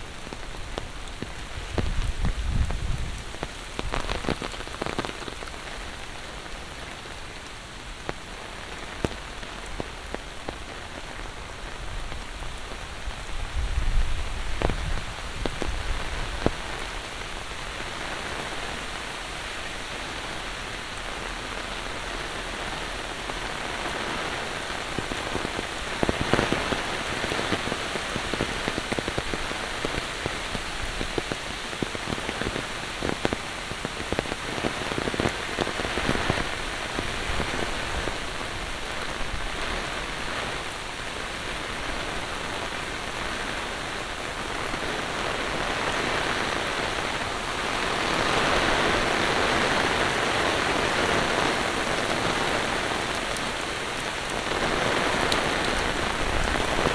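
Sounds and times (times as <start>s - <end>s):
heavy rain falling: 0.0s - 56.9s
sharp raindrop hits: 45.4s - 56.9s.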